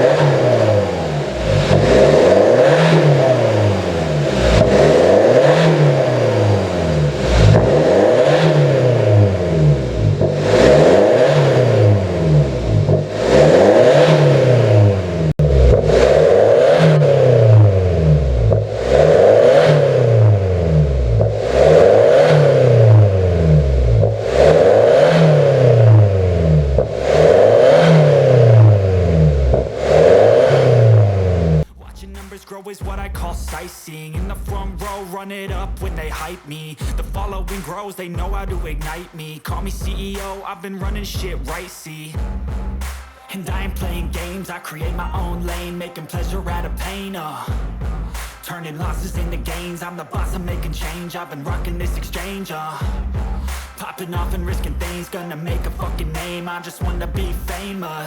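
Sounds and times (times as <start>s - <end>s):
diesel engine revving: 0.0s - 32.4s, 33.0s - 58.0s.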